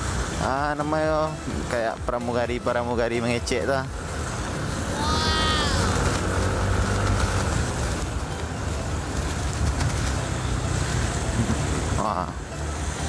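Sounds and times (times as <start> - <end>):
scooter engine rumble: 3.2 - 13.0.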